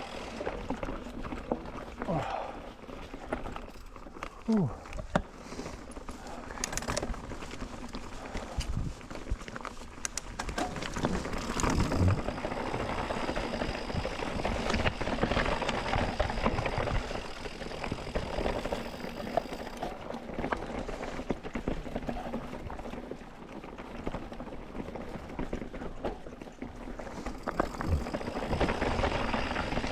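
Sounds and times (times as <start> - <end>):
bike rattling: 0.0 - 29.9
tyres crunching over stones: 0.2 - 20.4, 27.0 - 29.9.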